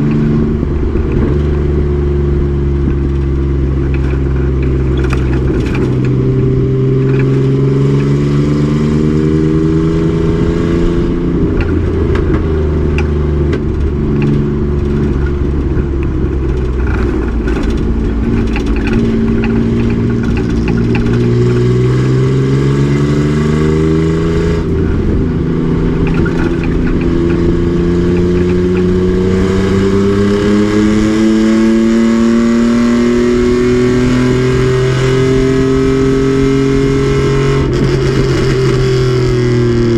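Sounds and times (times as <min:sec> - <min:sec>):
truck engine revving hard: 0:18.6 - 0:39.9.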